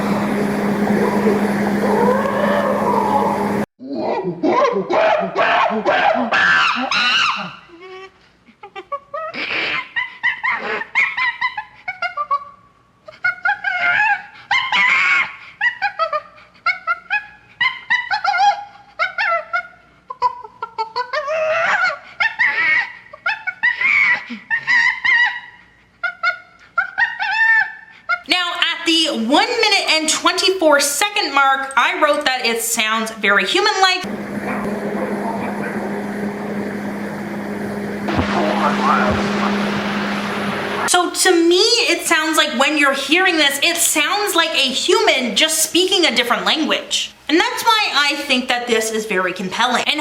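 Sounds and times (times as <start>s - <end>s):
ape-like hoots and shrieks: 0.2s - 7.7s.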